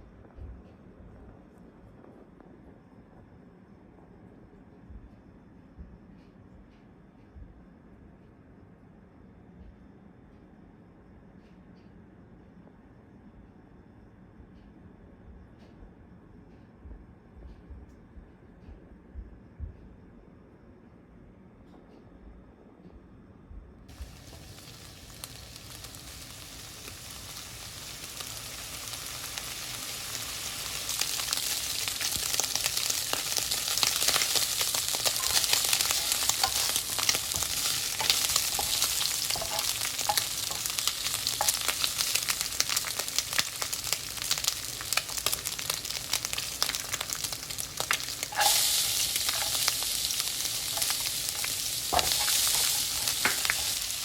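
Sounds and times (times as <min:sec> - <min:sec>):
food sizzling in a pan: 0:23.9 - 0:54.0.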